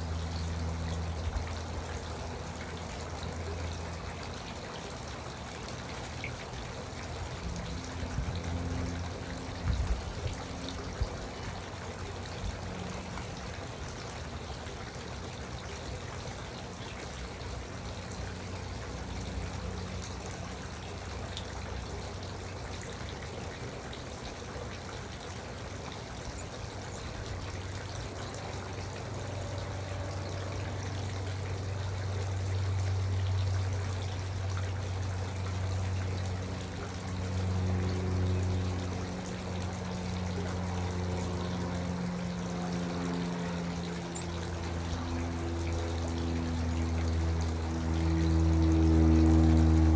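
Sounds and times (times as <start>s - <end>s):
fountain water trickling: 0.0s - 49.9s
low hum: 26.1s - 49.9s.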